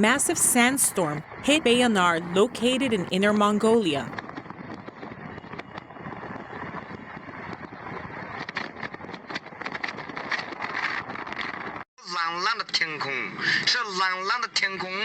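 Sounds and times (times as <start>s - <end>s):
wind rushing over microphone: 4.0s - 11.4s
sharp clicks and crackles: 4.1s - 11.8s.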